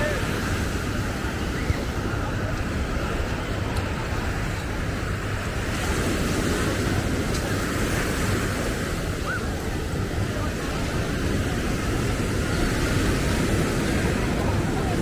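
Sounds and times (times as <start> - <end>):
ocean surf washing: 0.0 - 15.0.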